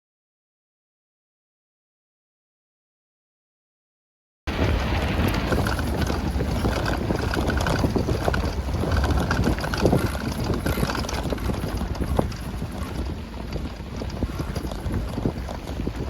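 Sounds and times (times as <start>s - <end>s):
wind buffeting microphone: 4.5s - 16.0s
small knocks and rattles: 5.1s - 16.0s.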